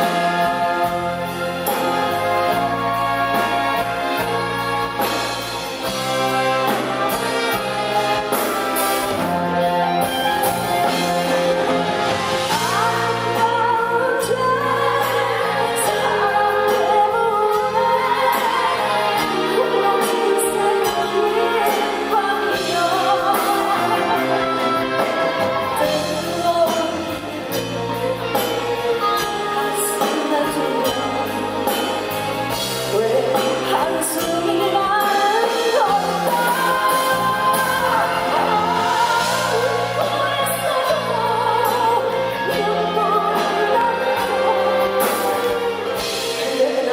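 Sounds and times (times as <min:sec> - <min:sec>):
live band accompaniment: 0:00.0 - 0:46.9
woman singing slow song: 0:12.5 - 0:25.0, 0:25.8 - 0:31.5, 0:32.9 - 0:46.9.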